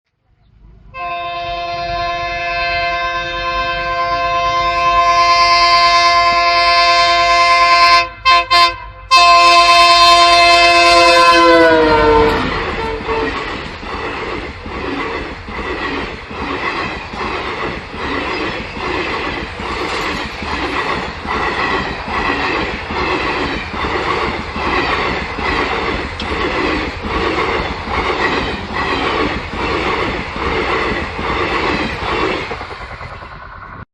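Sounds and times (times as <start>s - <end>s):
train horn: 0.9s - 13.6s
train wheels clickety-clack: 10.3s - 33.8s.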